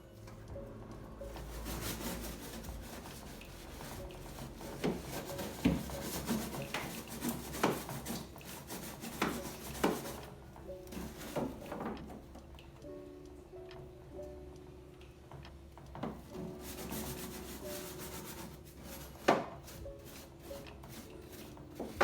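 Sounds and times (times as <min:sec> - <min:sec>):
hand scrubbing a surface: 0:01.3 - 0:10.3, 0:16.3 - 0:22.0.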